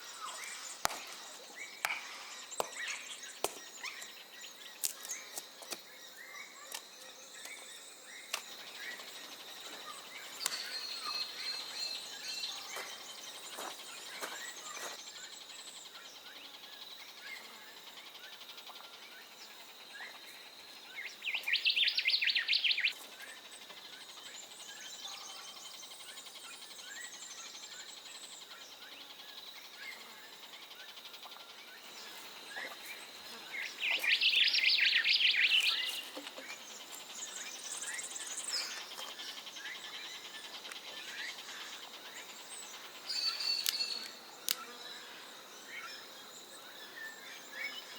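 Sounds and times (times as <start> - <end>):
bird chirps: 0.0 - 45.1
bird rapid trills: 8.6 - 44.8.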